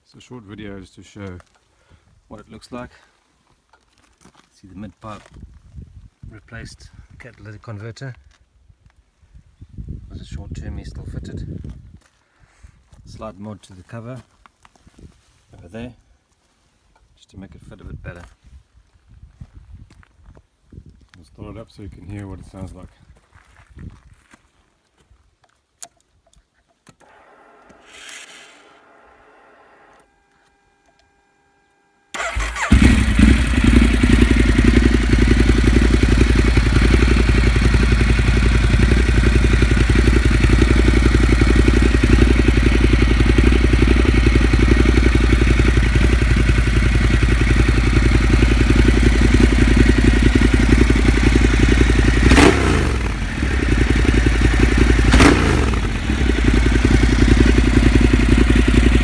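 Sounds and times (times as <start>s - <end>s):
motorcycle engine idling: 32.1s - 59.0s.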